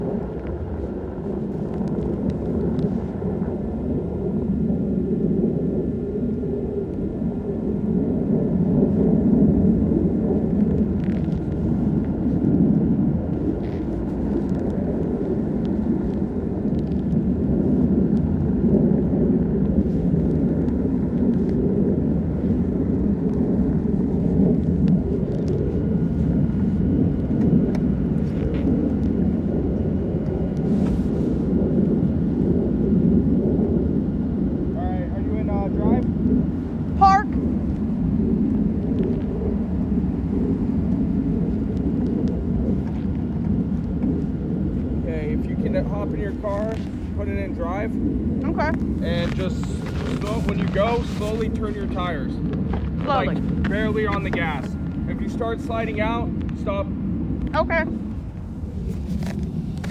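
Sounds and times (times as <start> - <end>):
faint steady whine: 0.0 - 59.9
vehicle engine rumble: 19.6 - 59.9.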